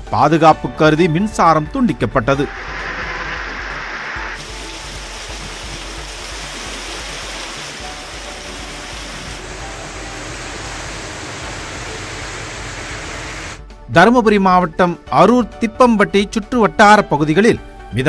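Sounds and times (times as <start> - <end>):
heavy rain on pavement: 2.6 - 13.6.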